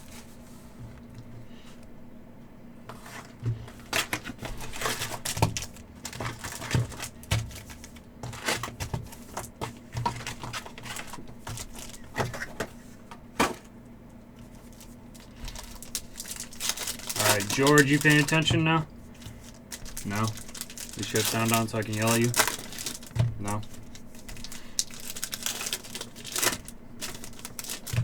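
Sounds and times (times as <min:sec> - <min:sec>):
wrappers crinkling and tearing: 0:03.8 - 0:12.6, 0:14.4 - 0:28.0
cards rustling and clicking: 0:14.4 - 0:28.0.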